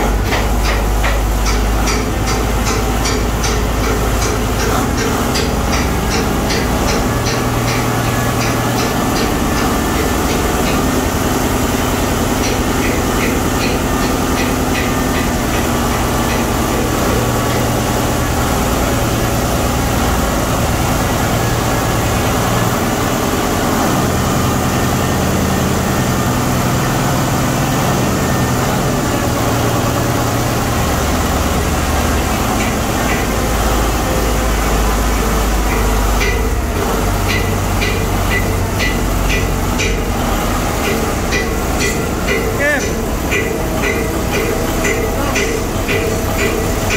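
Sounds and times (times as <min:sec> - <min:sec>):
diesel engine drone: 0:00.0 - 0:46.9
rapid engine ticking: 0:00.0 - 0:46.9.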